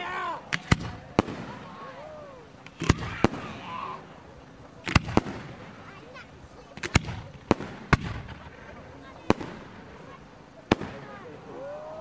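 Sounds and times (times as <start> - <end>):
firework shells banging: 0.5 - 1.8, 2.5 - 4.1, 4.8 - 5.8.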